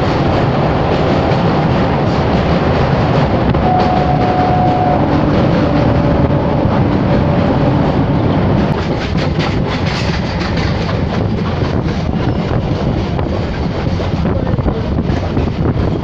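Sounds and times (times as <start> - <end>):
train wheels rumbling on track: 0.0 - 16.0
sharp clicking and rattling: 8.5 - 16.0.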